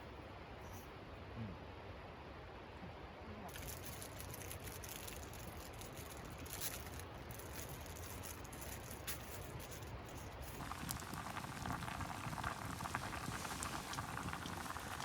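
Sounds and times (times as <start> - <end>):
food crackling and bubbling: 10.3 - 15.0
small pops: 10.6 - 15.0.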